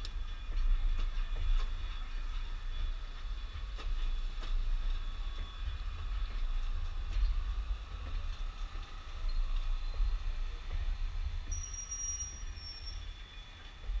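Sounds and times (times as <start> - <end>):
train rolling past rumbling: 0.0 - 14.0
wheels squealing: 11.4 - 14.0.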